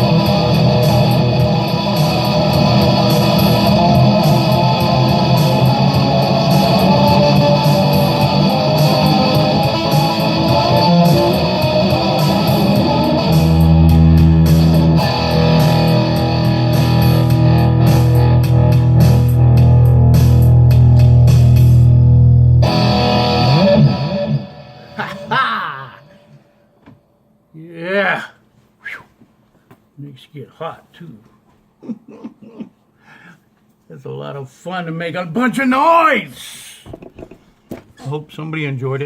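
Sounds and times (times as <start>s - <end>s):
distorted electric guitar: 0.0s - 26.6s.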